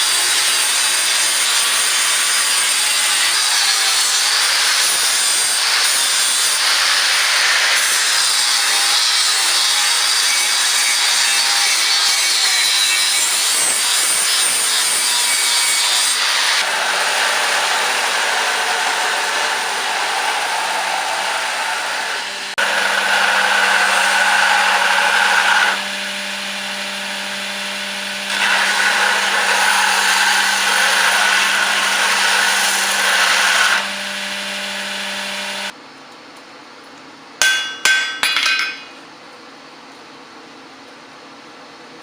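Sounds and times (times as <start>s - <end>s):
electric grinder grinding steel: 0.0s - 35.8s
hammer strikes on steel: 37.4s - 39.0s.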